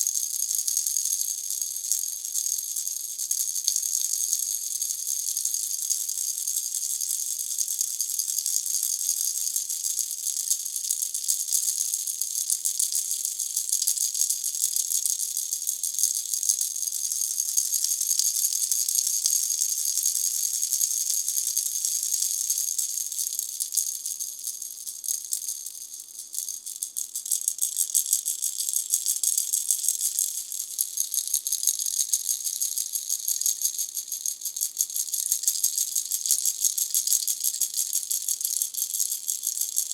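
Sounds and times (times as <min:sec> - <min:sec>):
baby rattle shaken: 0:15.2 - 0:39.9.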